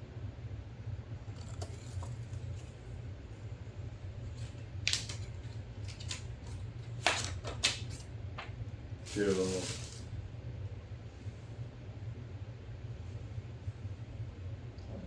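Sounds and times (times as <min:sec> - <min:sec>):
steady low hum: 0:00.0 - 0:15.0
paper and packaging rustling: 0:09.0 - 0:10.1.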